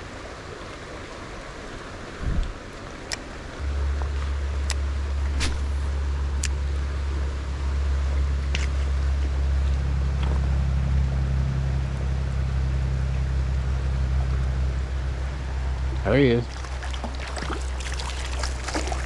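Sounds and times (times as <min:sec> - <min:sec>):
wind rumbling on microphone: 0:02.1 - 0:03.6
brief clicks: 0:05.2 - 0:05.9
river water rushing: 0:05.2 - 0:05.9.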